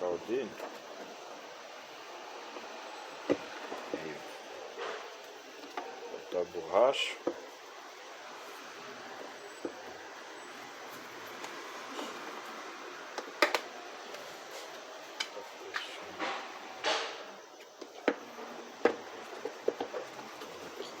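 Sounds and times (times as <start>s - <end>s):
plastic parts clicking and knocking: 13.2s - 13.7s.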